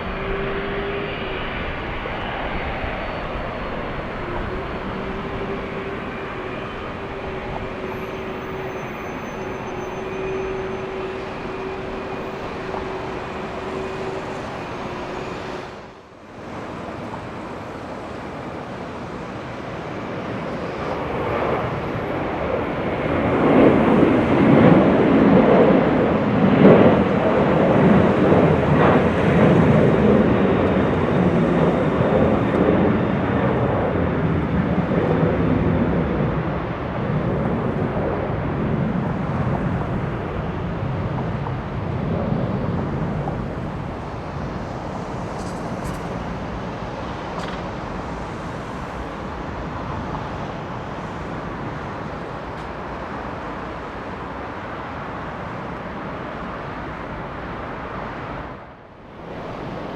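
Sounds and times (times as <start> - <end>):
jet airliner engine whine: 0.0 - 59.9
rough jet engine noise: 0.0 - 59.9.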